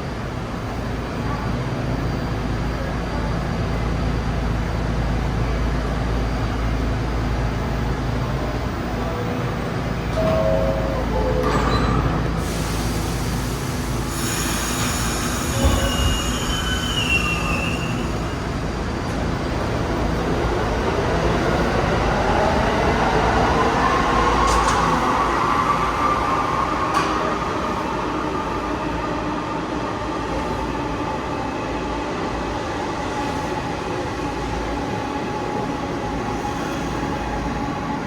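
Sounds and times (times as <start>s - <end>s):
train wheels rumbling on rail: 11.4s - 38.0s.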